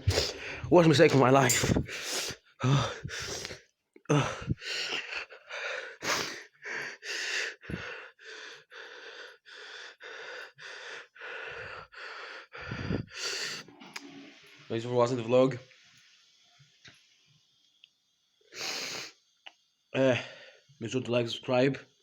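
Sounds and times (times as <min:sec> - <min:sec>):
man gasping and panting: 0:01.5 - 0:13.6.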